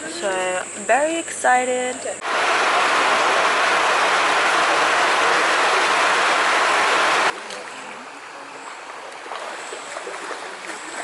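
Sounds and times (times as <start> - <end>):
rush of falling water: 2.2 - 7.8
small water splashes: 2.2 - 11.0.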